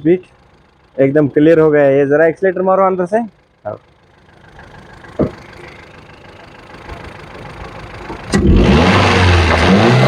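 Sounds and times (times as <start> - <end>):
car engine idling: 0.0 - 10.0
short thud: 5.2 - 5.4.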